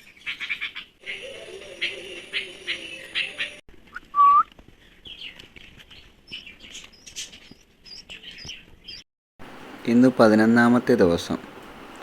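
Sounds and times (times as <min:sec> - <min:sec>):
nestling birds chirping: 0:00.0 - 0:09.1
short rising whistled note: 0:04.0 - 0:04.5.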